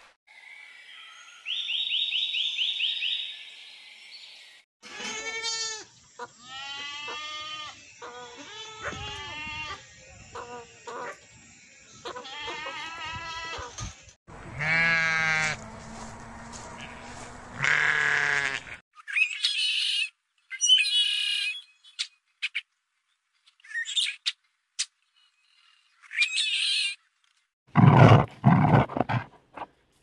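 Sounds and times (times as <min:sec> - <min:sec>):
goats bleating: 0:04.8 - 0:09.8, 0:12.1 - 0:13.7, 0:14.3 - 0:15.6, 0:16.8 - 0:18.8
sheep bleating: 0:04.8 - 0:09.8, 0:12.1 - 0:13.7, 0:14.4 - 0:15.6, 0:16.7 - 0:18.8.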